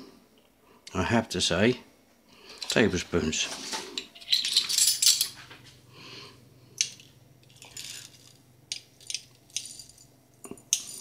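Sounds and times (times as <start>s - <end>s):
faint steady hum: 0.0s - 11.0s
utensils clicking and clinking: 3.7s - 5.6s, 6.8s - 11.0s.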